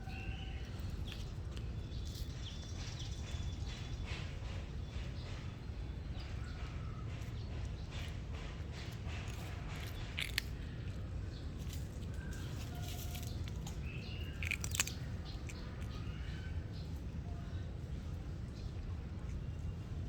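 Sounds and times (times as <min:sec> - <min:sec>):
steady low rumble: 0:00.0 - 0:20.0
cat chewing clicks: 0:08.8 - 0:11.0, 0:13.2 - 0:16.1.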